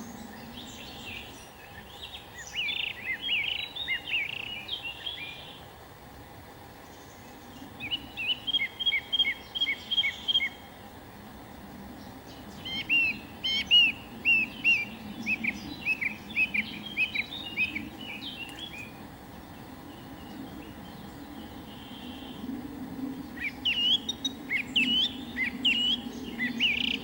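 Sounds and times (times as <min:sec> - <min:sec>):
low background noise: 0:00.0 - 0:27.0
songbird singing: 0:00.0 - 0:27.0.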